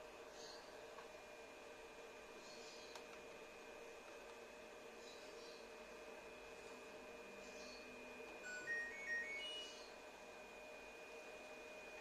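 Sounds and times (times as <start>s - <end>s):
faint high-pitched whine and hum: 0.0s - 12.0s
washing machine beeper tune: 8.3s - 10.0s.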